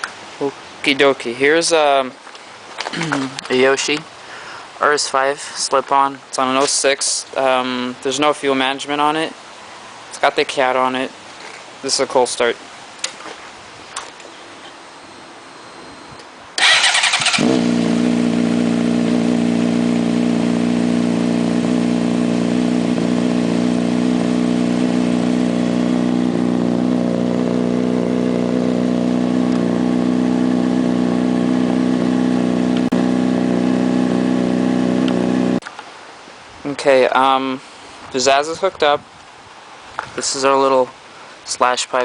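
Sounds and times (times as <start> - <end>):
starter cranking: 16.6 - 17.7
motorcycle engine idling: 16.6 - 35.6.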